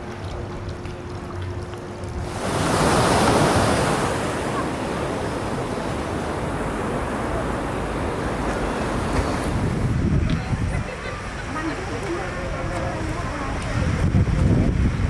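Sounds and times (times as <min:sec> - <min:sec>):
wind buffeting microphone: 0:02.0 - 0:11.0, 0:12.1 - 0:15.0
sea surf rushing: 0:02.2 - 0:15.0.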